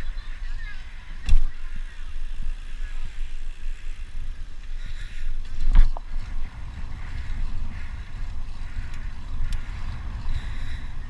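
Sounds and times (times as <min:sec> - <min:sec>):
wind buffeting microphone: 0:02.5 - 0:11.0.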